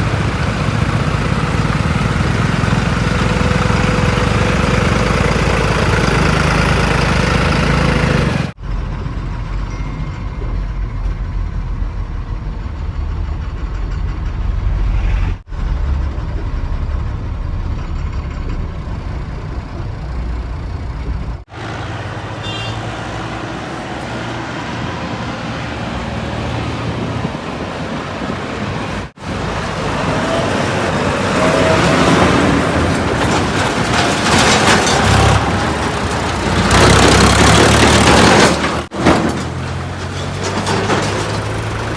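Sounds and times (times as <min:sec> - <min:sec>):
heavy diesel engines rumbling: 0:00.0 - 0:41.9.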